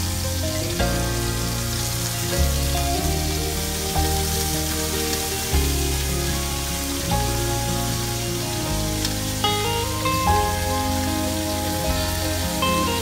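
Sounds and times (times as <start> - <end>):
instrumental background music: 0.0 - 13.0
vegetables sizzling in oil: 0.0 - 13.0.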